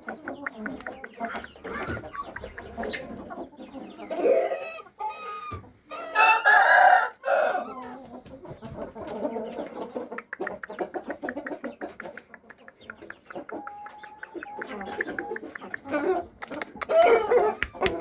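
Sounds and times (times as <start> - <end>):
rooster clucking calls: 0.0 - 8.0, 9.3 - 18.0
rooster crowing: 6.0 - 7.8
small clicks: 12.1 - 18.0.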